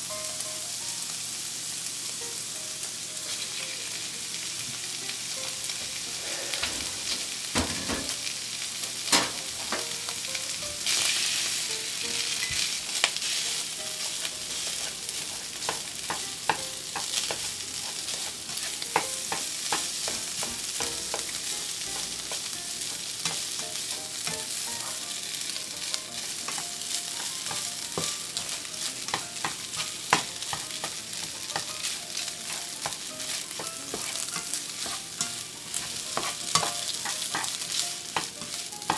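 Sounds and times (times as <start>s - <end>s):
food sizzling in a frying pan: 0.0s - 38.9s
spatula scraping a pan: 5.8s - 8.2s, 14.0s - 22.5s, 23.2s - 38.9s.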